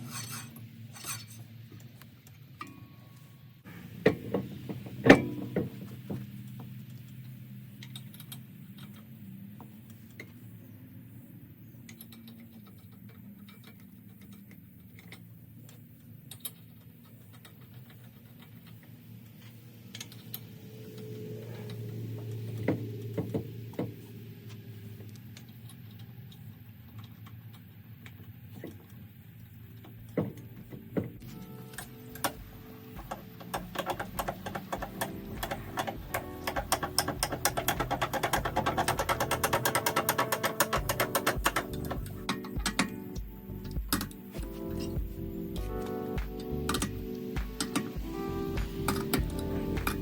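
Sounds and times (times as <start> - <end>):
low hum: 18.5 - 50.0.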